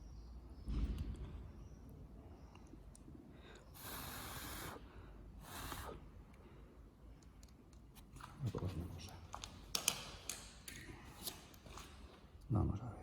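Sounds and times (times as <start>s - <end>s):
breathy hisses of breath: 3.3s - 7.0s.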